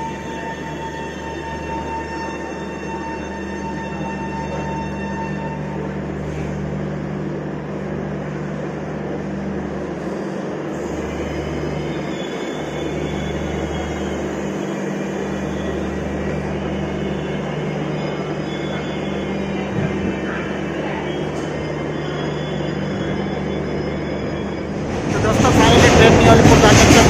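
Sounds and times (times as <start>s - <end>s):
passenger train rumbling: 0.0s - 27.0s.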